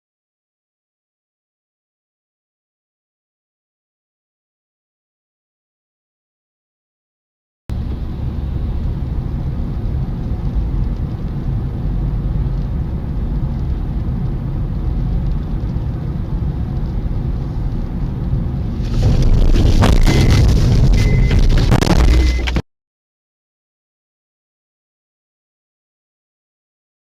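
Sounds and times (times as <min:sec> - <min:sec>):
car driving rumble: 0:07.7 - 0:22.6.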